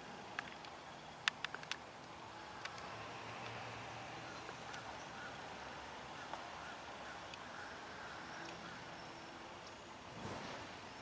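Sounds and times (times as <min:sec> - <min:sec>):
outdoor background hiss: 0:00.0 - 0:11.0
faint bird calls: 0:04.1 - 0:09.9.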